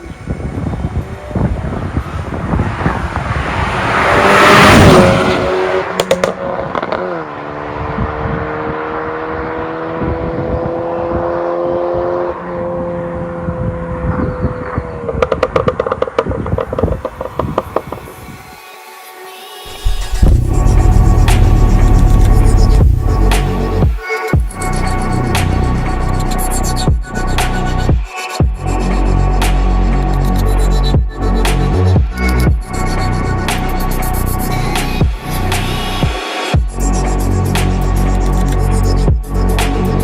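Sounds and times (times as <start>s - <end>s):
exhaust crackles: 0.0s - 7.0s, 14.6s - 18.2s, 19.7s - 24.0s
car engine revving: 0.0s - 10.4s, 11.1s - 18.2s, 19.7s - 27.8s.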